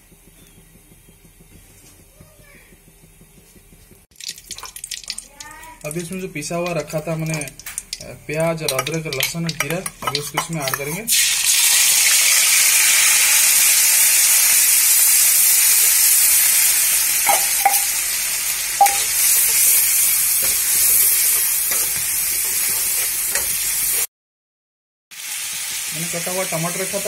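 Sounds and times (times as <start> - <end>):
paste sizzling in hot oil: 0.0 - 24.1, 25.1 - 27.0
spatula clicking against pan: 4.2 - 10.9.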